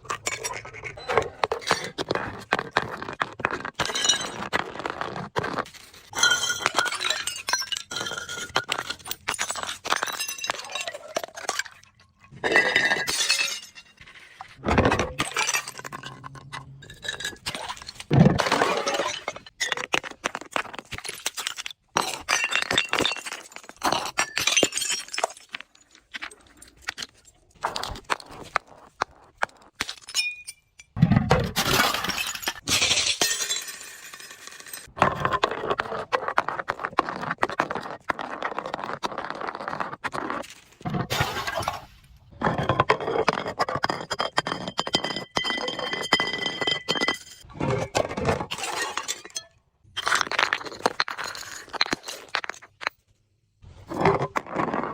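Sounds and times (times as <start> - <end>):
glass bottles breaking and crunching: 3.2 - 34.9, 40.8 - 53.0.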